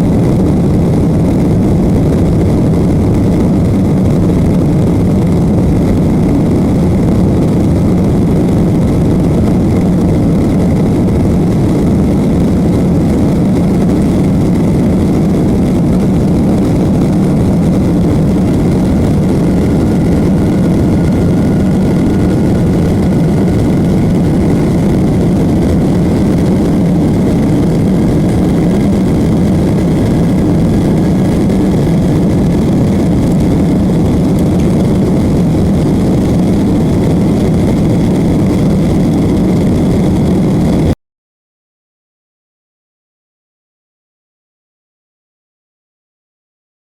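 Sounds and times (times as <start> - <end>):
jet engines roaring in cabin: 0.0 - 41.0.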